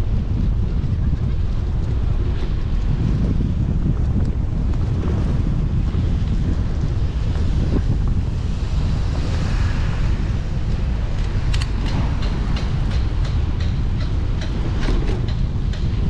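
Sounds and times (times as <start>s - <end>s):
wind buffeting microphone: 0.0s - 16.0s
even clicks: 11.2s - 15.9s.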